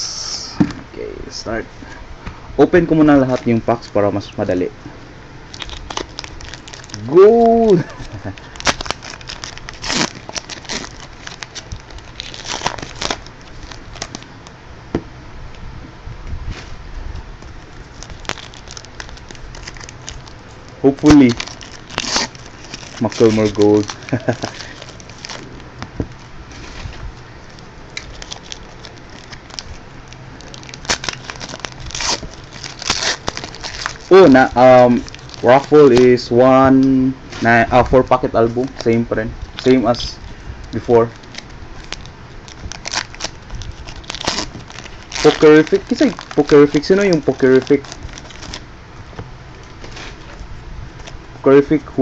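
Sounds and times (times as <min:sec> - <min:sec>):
wrappers crinkling: 0:05.4 - 0:14.6, 0:17.4 - 0:48.7
card packs ripping: 0:05.5 - 0:14.3, 0:17.6 - 0:26.9, 0:27.5 - 0:36.3, 0:40.7 - 0:48.6.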